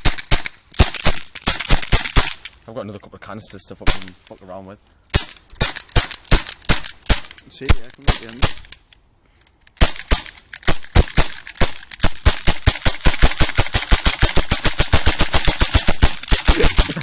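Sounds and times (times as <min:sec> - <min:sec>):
air pistol rapid shots: 0:00.0 - 0:02.5, 0:05.1 - 0:08.8, 0:09.8 - 0:17.0.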